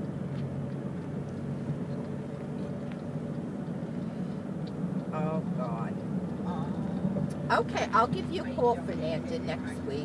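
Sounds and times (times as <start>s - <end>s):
faint ticks: 0.0s - 7.4s
car engine hum: 0.0s - 10.0s
road noise: 0.0s - 10.0s.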